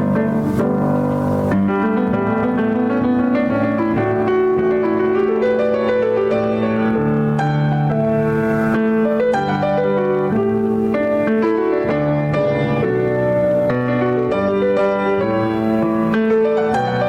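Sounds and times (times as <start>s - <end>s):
slow keyboard chords: 0.0s - 17.0s.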